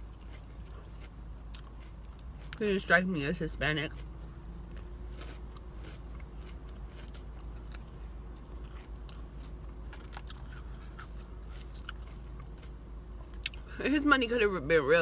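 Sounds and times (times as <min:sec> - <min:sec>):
person chewing salad: 0:00.0 - 0:13.7.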